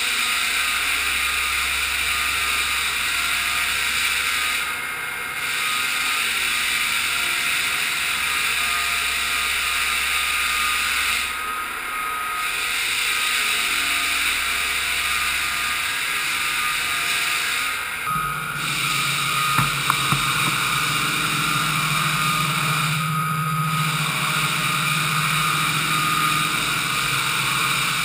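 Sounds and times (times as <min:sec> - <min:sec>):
floor sander running: 0:18.6 - 0:28.0.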